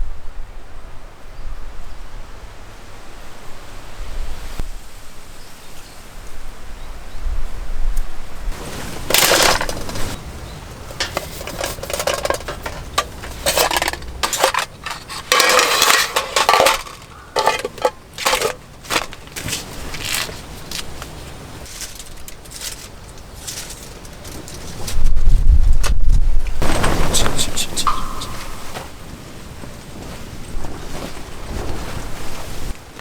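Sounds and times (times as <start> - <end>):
dishes and cutlery clattering: 9.0 - 20.5, 21.6 - 25.0, 27.7 - 28.9.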